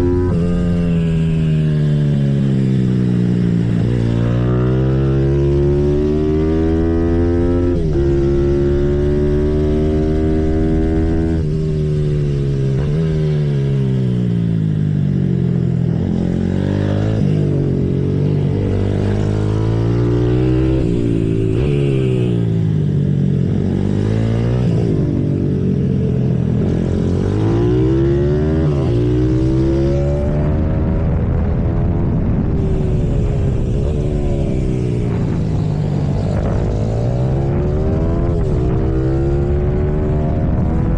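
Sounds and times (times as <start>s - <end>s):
motorbike engine revving: 0.0s - 14.8s, 32.4s - 40.9s.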